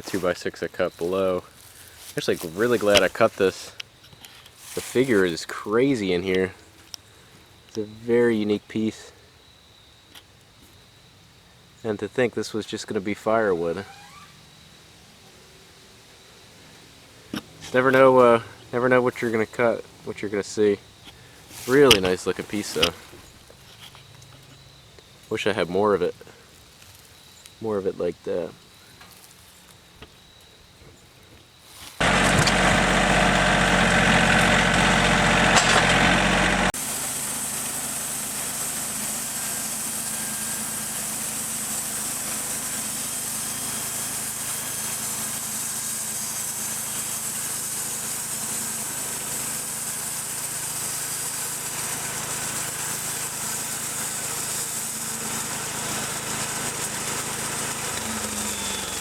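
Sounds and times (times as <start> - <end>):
engine starting and idling: 32.0 - 59.0.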